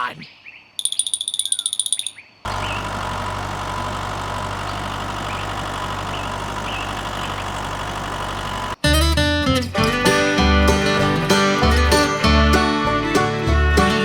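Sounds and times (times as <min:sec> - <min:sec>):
faint bird chirps: 0:00.0 - 0:03.0, 0:04.6 - 0:07.7
engine idling: 0:02.5 - 0:14.0.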